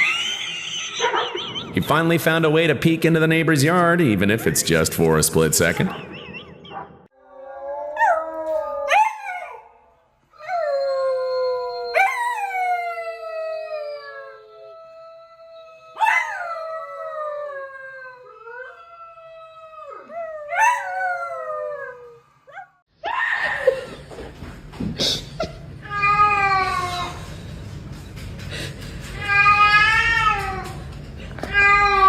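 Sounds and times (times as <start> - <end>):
dog howling: 0.0 - 1.6.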